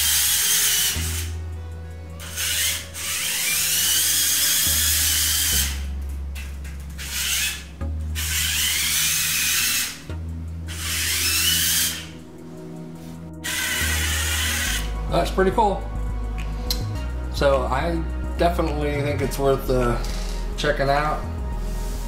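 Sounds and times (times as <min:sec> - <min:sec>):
toy truck motor whining: 0:00.0 - 0:01.4, 0:02.2 - 0:05.9, 0:07.0 - 0:10.1, 0:10.7 - 0:12.2, 0:13.4 - 0:14.9.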